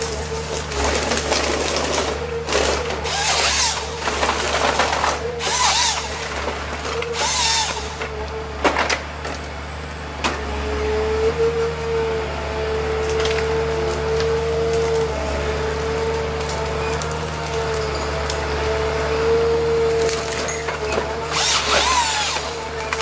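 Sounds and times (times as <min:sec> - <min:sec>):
harsh cutting through wood: 0:00.0 - 0:08.2, 0:21.2 - 0:23.0
machine engine running: 0:13.7 - 0:23.0.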